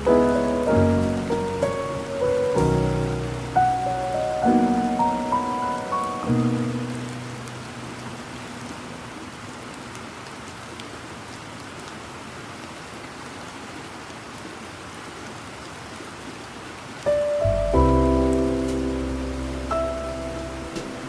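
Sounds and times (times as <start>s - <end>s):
rain drop ticks: 0.0s - 8.9s
piano chord: 0.0s - 9.3s, 17.1s - 21.0s
steady rainfall: 0.0s - 21.0s.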